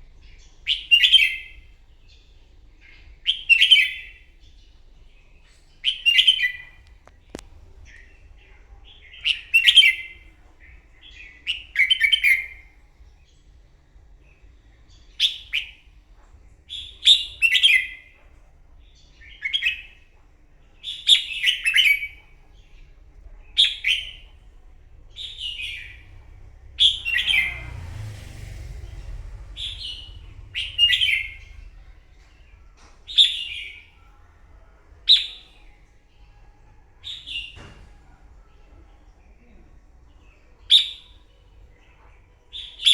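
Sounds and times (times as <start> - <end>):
low rumble: 6.6 - 9.2, 22.2 - 42.3
bulbul singing: 20.7 - 27.8, 28.9 - 37.6.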